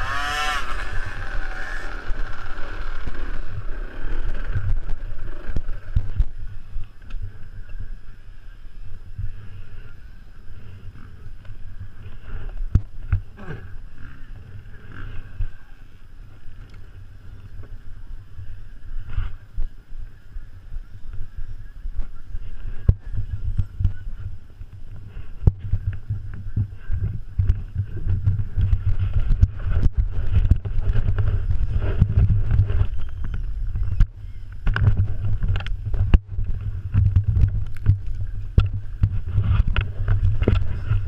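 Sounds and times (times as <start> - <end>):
motocross bike engine revving: 0.0 - 5.9
wind buffeting microphone: 0.0 - 41.0.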